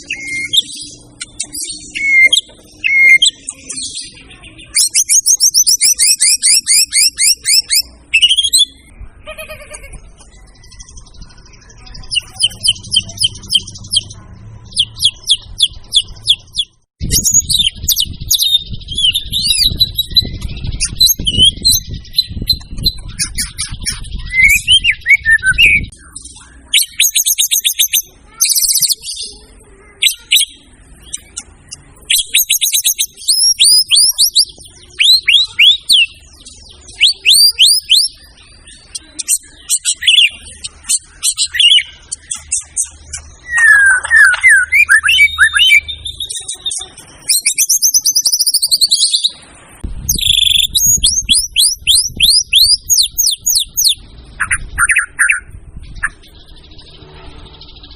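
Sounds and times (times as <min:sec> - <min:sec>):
songbird whistling and rattling: 0:00.0 - 0:29.3, 0:30.0 - 0:49.4, 0:50.0 - 0:56.9
low rumble: 0:49.7 - 0:52.5.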